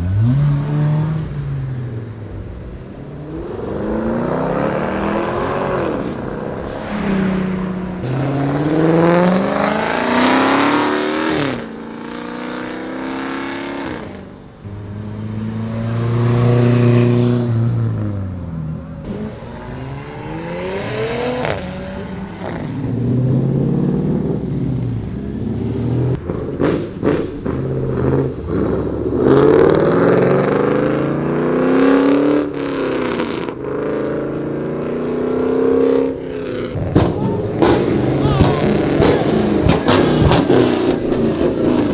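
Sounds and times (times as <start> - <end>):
car engines revving and accelerating: 0.0 - 41.9
sharp cracks: 36.8 - 41.9.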